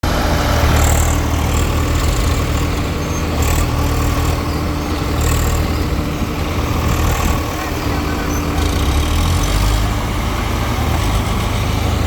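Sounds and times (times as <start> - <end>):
tractor diesel engine hum: 0.0 - 12.0.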